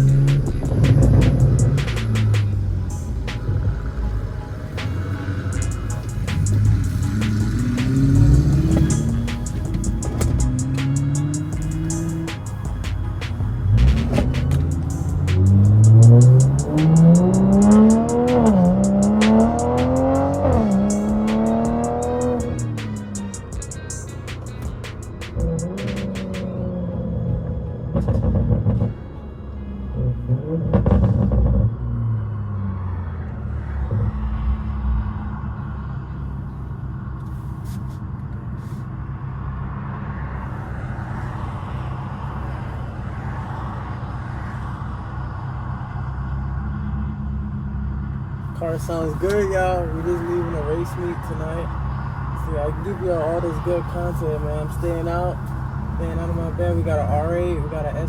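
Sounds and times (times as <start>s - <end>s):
music: 0.0s - 26.5s
rushing noise: 0.0s - 26.5s
car engine accelerating: 0.0s - 58.0s.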